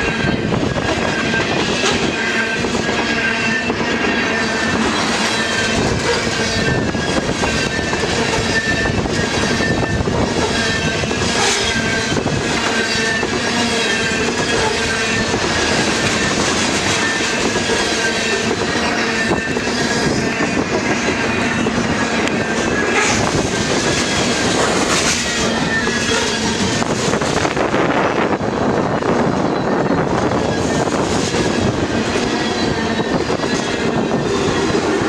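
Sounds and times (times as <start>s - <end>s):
faint high wheel squeal: 0.0s - 27.7s, 29.0s - 35.0s
freight train rolling past: 0.0s - 35.0s.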